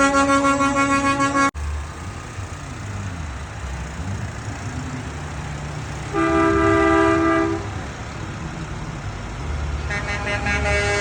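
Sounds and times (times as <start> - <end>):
truck air horn chord: 0.0 - 1.6, 6.1 - 7.7, 9.9 - 11.0
road noise: 0.0 - 11.0
truck engines rumbling past: 0.0 - 11.0.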